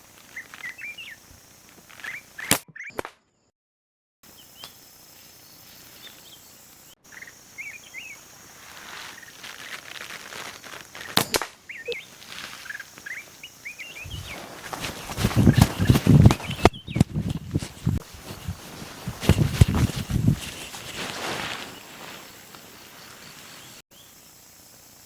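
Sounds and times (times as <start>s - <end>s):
outdoor background noise: 0.0s - 3.2s, 4.2s - 25.0s
small birds chirping: 0.1s - 3.0s, 4.3s - 24.2s
sharp snap: 2.4s - 3.2s, 11.0s - 12.0s.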